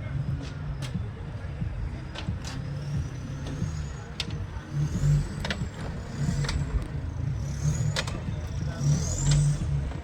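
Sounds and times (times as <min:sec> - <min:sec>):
off-road engine revving: 0:02.6 - 0:10.0.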